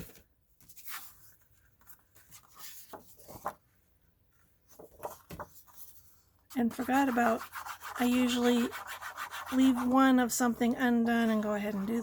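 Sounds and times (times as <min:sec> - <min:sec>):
paper rustling and scraping: 0:00.0 - 0:03.7.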